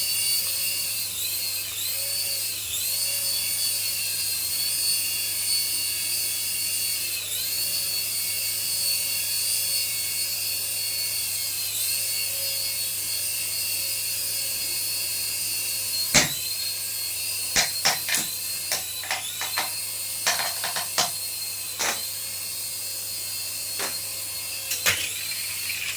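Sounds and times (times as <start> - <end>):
small electric motor whining: 0.0 - 25.9
sharp clicks and knocks: 16.2 - 16.5, 17.6 - 21.2, 21.8 - 22.1, 23.8 - 24.0.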